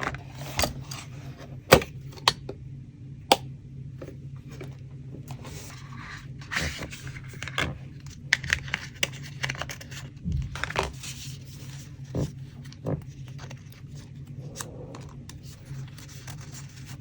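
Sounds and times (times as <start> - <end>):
steady low hum: 0.0 - 17.0
paper rustling and scraping: 4.4 - 17.0.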